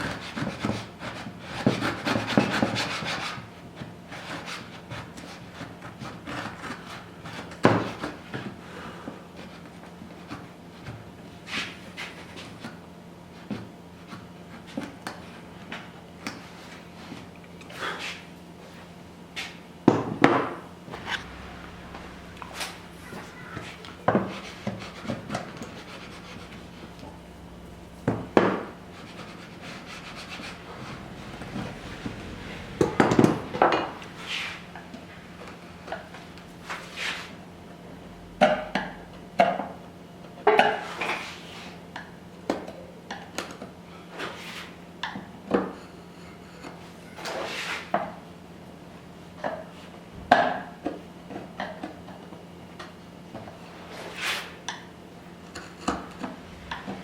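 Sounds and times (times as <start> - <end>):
blade scraping wood: 20.9 - 35.1.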